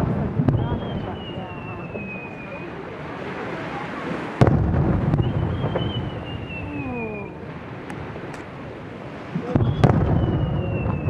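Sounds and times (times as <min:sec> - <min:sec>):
faint crackles: 0:00.0 - 0:11.0
firework burst echoing: 0:00.0 - 0:11.0.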